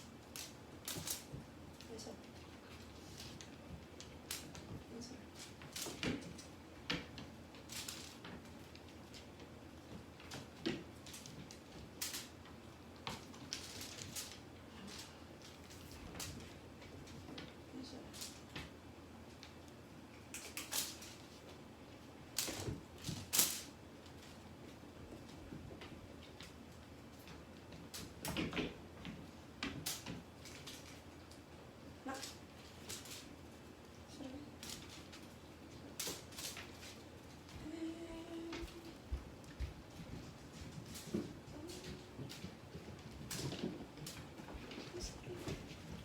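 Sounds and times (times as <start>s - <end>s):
rustling: 0.0s - 46.0s.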